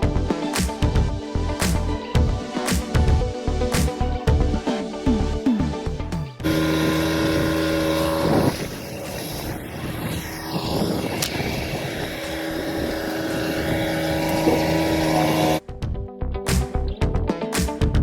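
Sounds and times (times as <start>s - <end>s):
truck engine droning: 5.1s - 15.6s
rushing wind or road noise: 6.4s - 15.6s.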